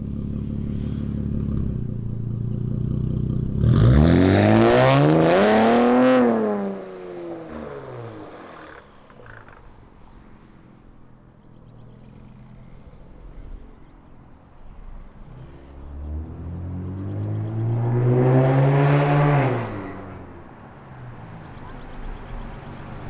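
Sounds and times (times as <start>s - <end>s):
car engine idling: 0.0s - 3.6s
car engine revving: 0.0s - 9.8s, 11.6s - 23.0s.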